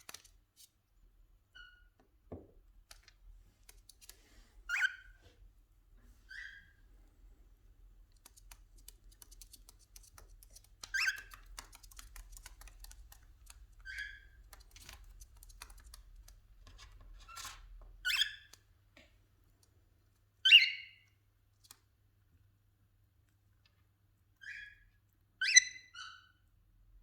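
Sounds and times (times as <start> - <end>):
cockatiels giving harsh calls: 4.7 - 5.1, 25.4 - 26.4
beaks pecking clicks: 8.1 - 16.4.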